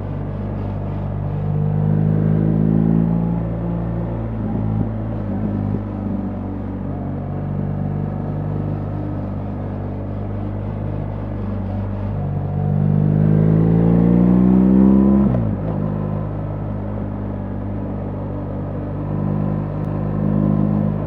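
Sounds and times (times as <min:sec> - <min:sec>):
motorcycle engine accelerating: 0:12.5 - 0:17.7.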